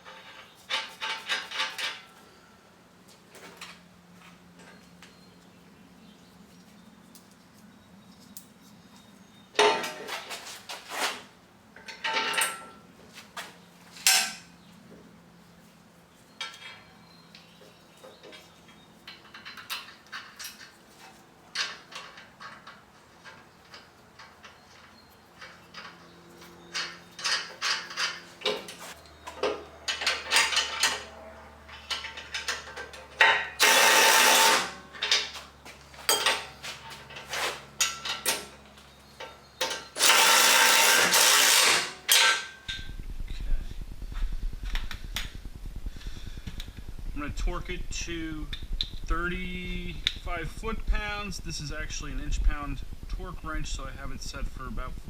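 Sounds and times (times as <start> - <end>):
hand tools and steel hardware clinking: 0.0 - 2.4, 8.2 - 14.6, 16.1 - 42.9
metal rattle: 18.2 - 31.1, 36.0 - 43.0
ratchet wrench clicks: 40.0 - 42.3.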